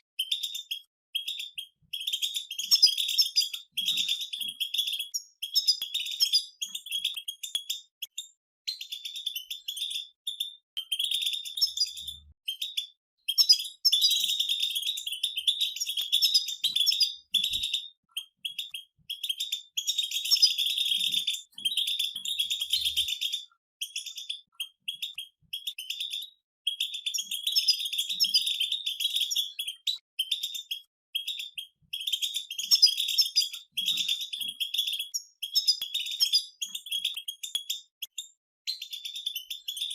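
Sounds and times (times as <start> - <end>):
finches twittering: 0.2 - 7.8, 8.8 - 37.5.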